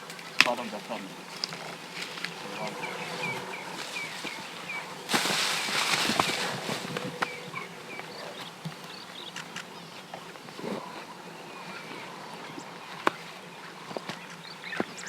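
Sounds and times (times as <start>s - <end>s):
loud hiss: 2.8s - 7.2s.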